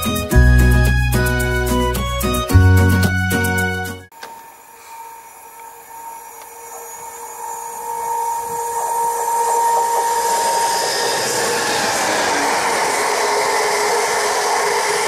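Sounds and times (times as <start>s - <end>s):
diesel locomotive whine: 4.1s - 15.0s
freight train rumble: 7.6s - 15.0s.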